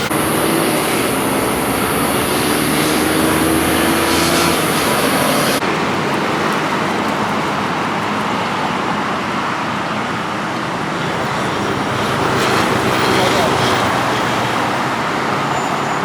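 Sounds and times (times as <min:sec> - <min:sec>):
city street traffic: 0:00.0 - 0:16.0.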